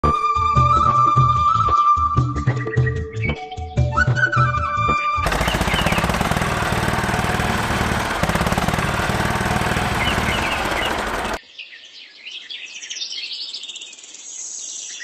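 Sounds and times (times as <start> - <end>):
small motor rattling: 5.3 - 11.4.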